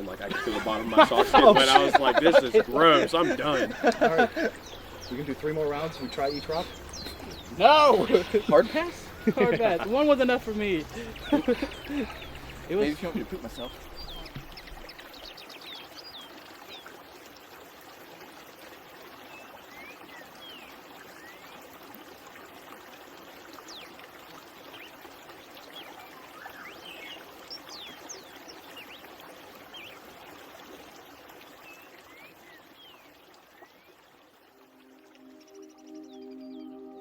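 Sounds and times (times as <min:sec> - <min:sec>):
stream trickling over rocks: 0:00.0 - 0:36.5
bird chirps: 0:03.3 - 0:15.4.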